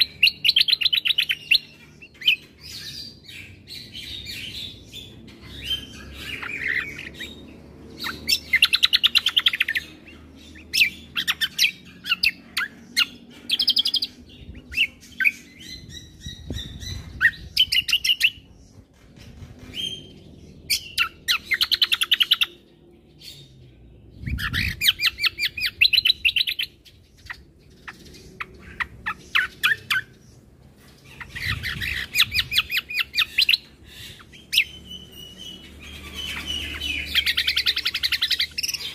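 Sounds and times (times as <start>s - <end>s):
songbird chattering trills: 24.2s - 38.9s.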